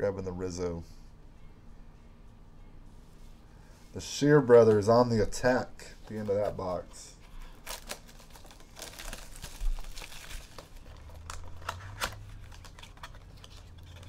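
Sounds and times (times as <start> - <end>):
plastic packaging crinkling: 6.0 - 14.0.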